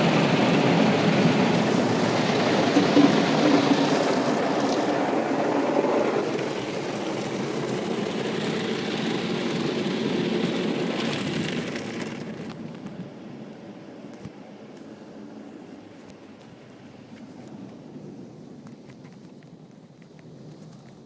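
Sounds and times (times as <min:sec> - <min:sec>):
car wash water spray and machinery: 0:00.0 - 0:13.4.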